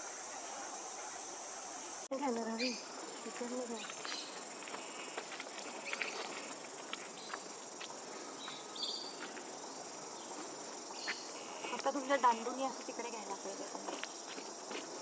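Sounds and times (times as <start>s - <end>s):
insects droning: 0.0s - 15.0s
bird chirps: 8.4s - 9.2s.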